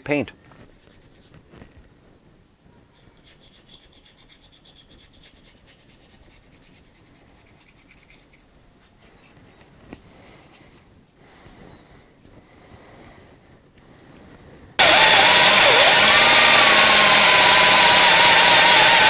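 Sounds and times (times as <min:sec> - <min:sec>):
short scratching strokes: 0:00.6 - 0:01.4, 0:03.0 - 0:09.3.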